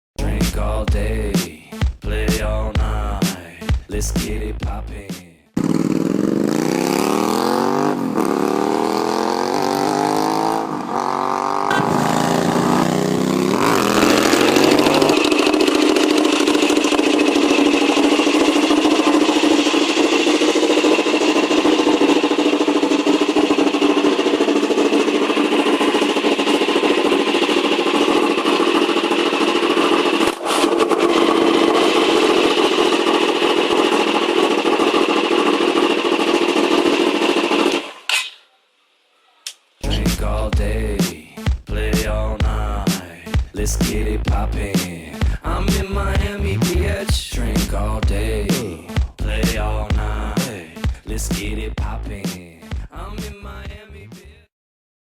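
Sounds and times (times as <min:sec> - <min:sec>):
motorcycle pulling away hard: 0:05.6 - 0:37.9.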